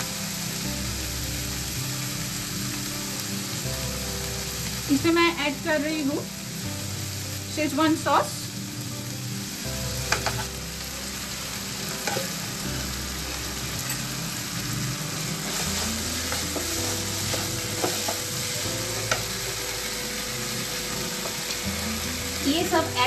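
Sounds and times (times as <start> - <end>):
vegetables sizzling in a pan: 0.0 - 23.0.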